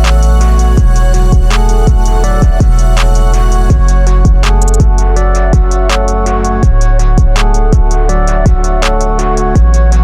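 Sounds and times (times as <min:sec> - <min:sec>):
deep bass drum hits: 0:03.7 - 0:05.0.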